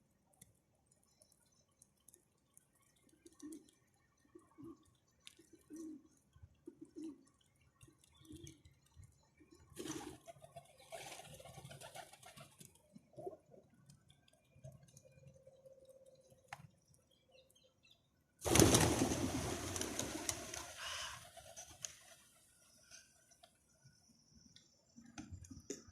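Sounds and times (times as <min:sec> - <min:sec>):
wings flapping: 0:09.8 - 0:12.8, 0:18.4 - 0:22.6.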